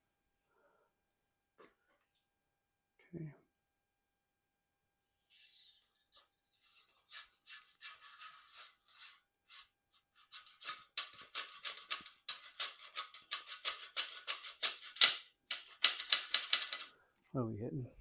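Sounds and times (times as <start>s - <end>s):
cable scraping in housing: 5.3s - 15.0s.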